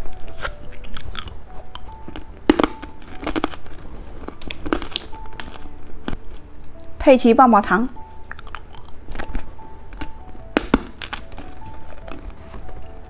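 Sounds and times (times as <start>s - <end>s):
hard candy being crunched: 0.0s - 6.9s.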